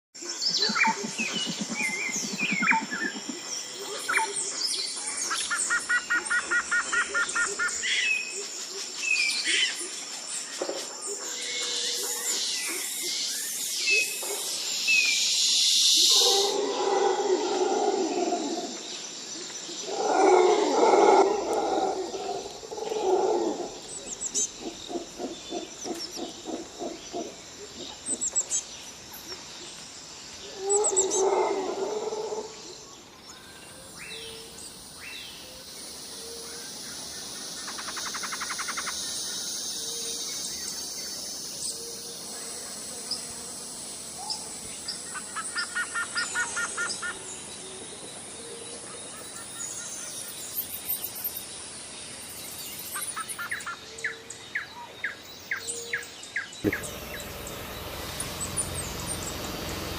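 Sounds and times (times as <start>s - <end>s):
bird trills and chirps: 0.2s - 8.3s
harsh bird calls: 0.3s - 8.3s, 35.3s - 43.4s, 55.6s - 59.9s
steady high hiss: 32.8s - 47.6s, 56.6s - 59.9s.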